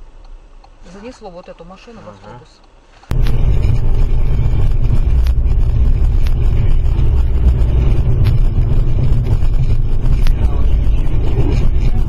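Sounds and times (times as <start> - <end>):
car driving rumble: 3.1 - 12.0.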